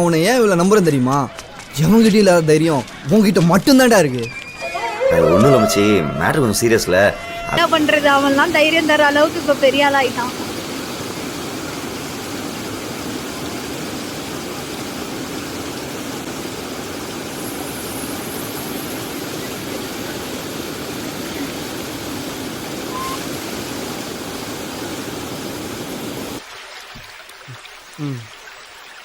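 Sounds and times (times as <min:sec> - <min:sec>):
river water over small falls: 0:07.6 - 0:29.0.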